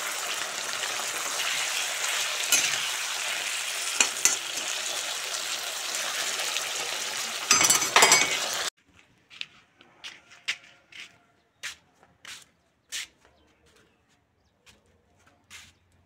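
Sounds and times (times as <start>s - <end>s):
meat and onions sizzling: 0.0s - 8.7s
metal spoon scraping a pan: 2.4s - 3.2s, 3.8s - 5.0s, 7.5s - 8.6s.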